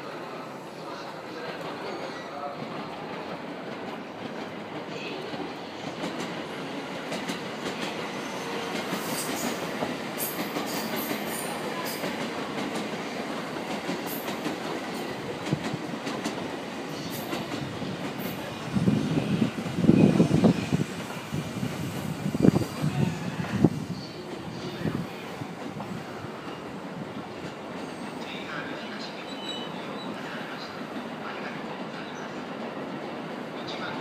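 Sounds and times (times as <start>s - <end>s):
train wheels rumbling on rail: 0.1s - 34.0s
train wheels clickety-clack: 1.4s - 28.3s.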